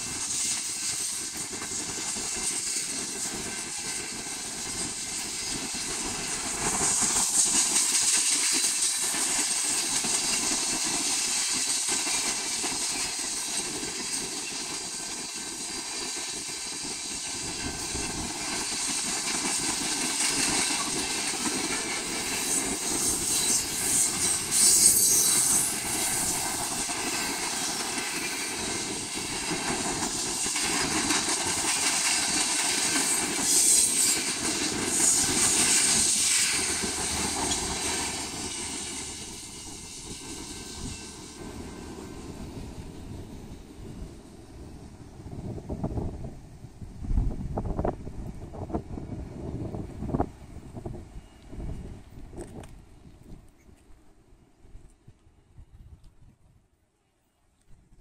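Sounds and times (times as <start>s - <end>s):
steel wheels rolling on rails: 0.0s - 44.6s
high hiss: 0.0s - 45.1s.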